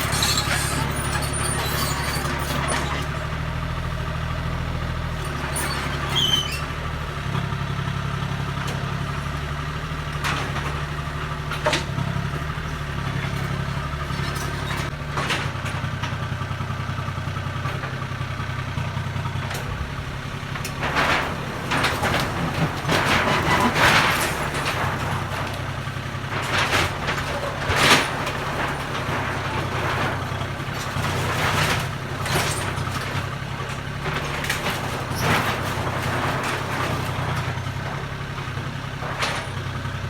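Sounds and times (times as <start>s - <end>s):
machine squeak: 0.0s - 3.1s, 5.3s - 6.8s
excavator diesel engine running: 0.0s - 40.0s.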